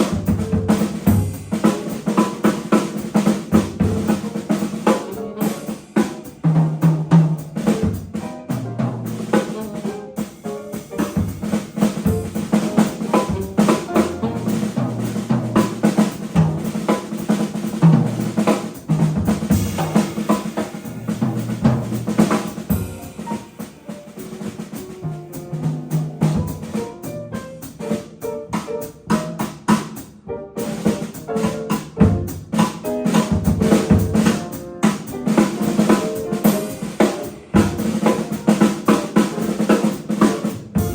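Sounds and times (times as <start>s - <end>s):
drum kit: 0.0s - 40.9s
jazz combo playing: 0.0s - 40.9s
bass notes: 6.5s - 9.9s, 11.0s - 23.4s, 25.0s - 27.6s.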